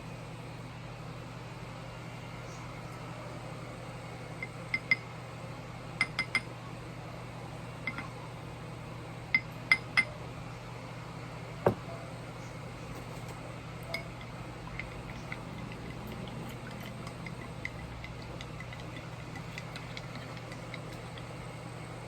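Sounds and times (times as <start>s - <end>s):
dull knock: 11.7s - 11.9s
spoon clinking against glass: 13.8s - 21.4s.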